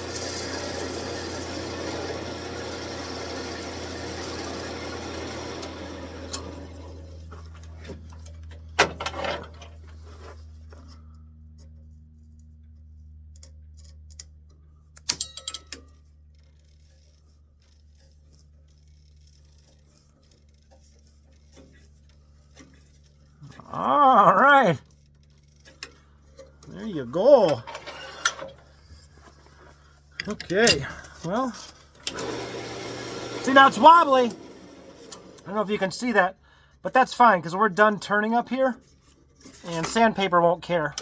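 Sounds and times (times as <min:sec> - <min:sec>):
gouge cutting spinning wood: 0:00.0 - 0:06.9, 0:32.2 - 0:35.1
wood lathe motor hum: 0:00.0 - 0:07.5, 0:31.2 - 0:35.7.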